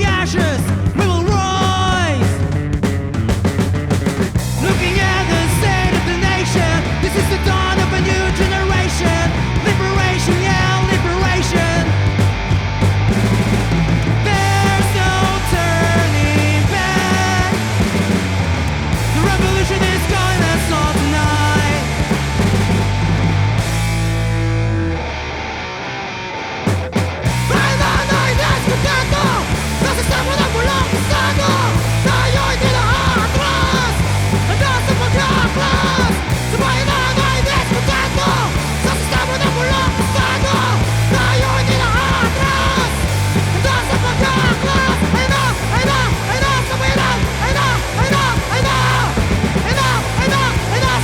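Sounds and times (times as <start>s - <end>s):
punk rock music: 0.0s - 51.0s
shouted vocals: 27.3s - 51.0s.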